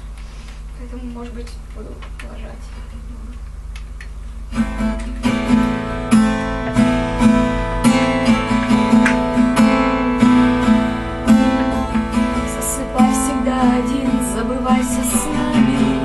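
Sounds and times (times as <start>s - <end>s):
acoustic guitar chords: 4.4s - 16.0s.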